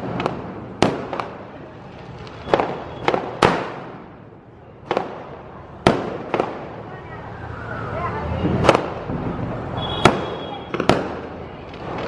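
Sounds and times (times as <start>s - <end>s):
firecracker bangs: 0.0s - 1.5s, 2.2s - 4.2s, 4.8s - 6.8s, 8.5s - 12.0s.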